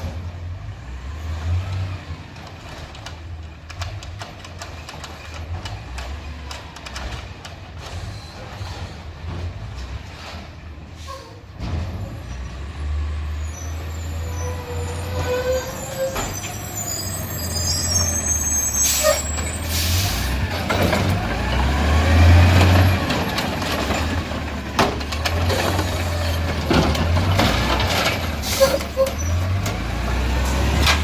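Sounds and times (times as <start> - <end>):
garbage truck diesel engine: 0.0 - 31.0.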